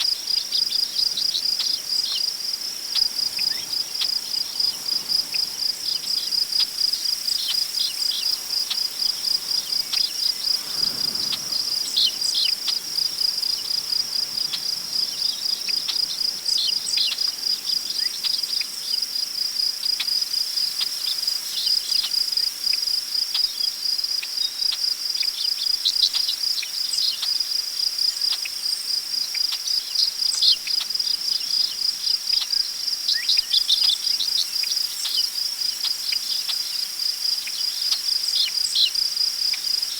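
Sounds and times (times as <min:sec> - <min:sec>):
crickets chirping: 0:00.0 - 0:39.9
soft gust of wind: 0:08.3 - 0:16.4.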